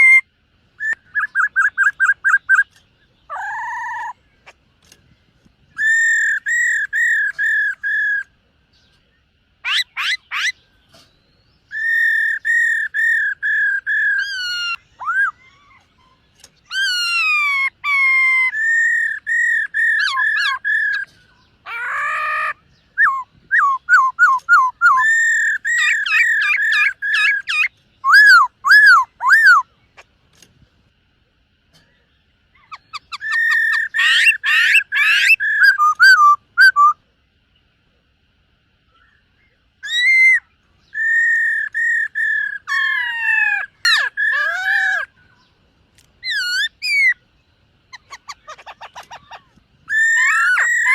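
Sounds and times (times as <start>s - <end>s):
bird singing whistled phrases: 0.0s - 4.2s, 5.8s - 8.3s, 11.6s - 21.1s, 21.8s - 29.7s, 32.6s - 37.0s, 39.8s - 45.4s.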